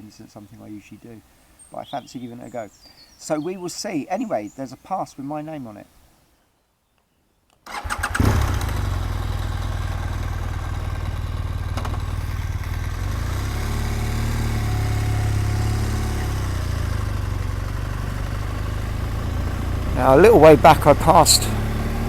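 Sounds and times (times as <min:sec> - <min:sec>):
motorcycle engine idling: 0:08.1 - 0:22.0.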